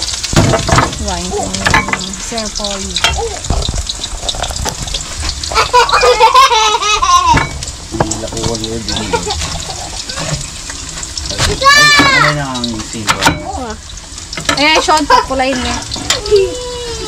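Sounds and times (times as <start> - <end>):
noodles sizzling in a wok: 0.0 - 17.0
voices talking: 1.0 - 3.6, 8.0 - 10.5, 14.5 - 17.0.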